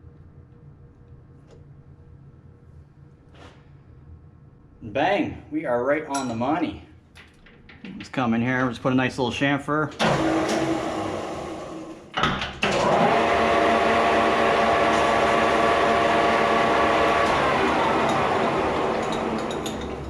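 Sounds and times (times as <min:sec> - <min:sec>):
lathe humming: 0:12.6 - 0:20.0.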